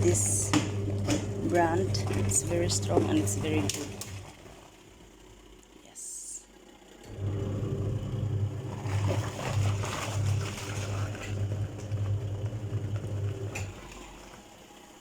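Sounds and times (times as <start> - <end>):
water churning: 0.0 - 4.8, 8.2 - 14.4
washing machine motor humming: 0.0 - 15.0.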